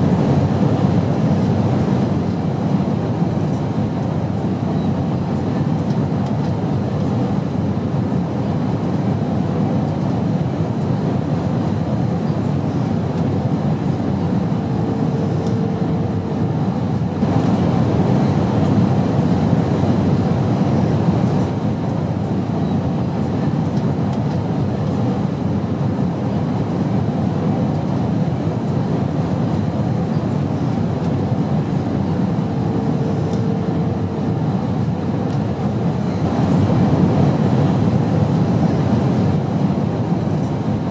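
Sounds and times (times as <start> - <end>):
airplane cabin engine rumble: 0.0 - 40.9.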